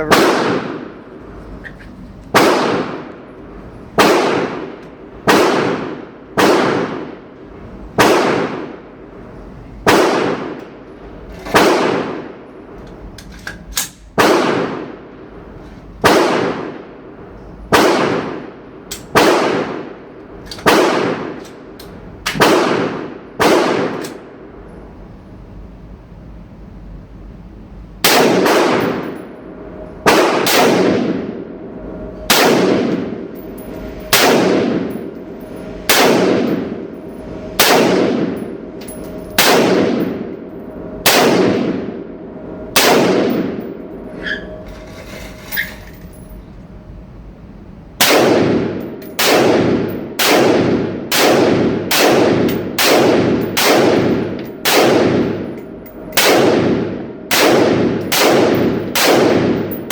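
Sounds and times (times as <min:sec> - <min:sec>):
rifle shots with echoing ring: 0:00.0 - 0:01.1, 0:02.3 - 0:03.3, 0:04.0 - 0:07.4, 0:08.0 - 0:08.9, 0:09.8 - 0:10.9, 0:11.5 - 0:12.5, 0:13.8 - 0:15.1, 0:16.0 - 0:17.0, 0:17.7 - 0:24.3, 0:28.0 - 0:31.7, 0:32.3 - 0:44.4, 0:48.0 - 0:59.9
faint metal clinks: 0:43.9 - 0:46.6.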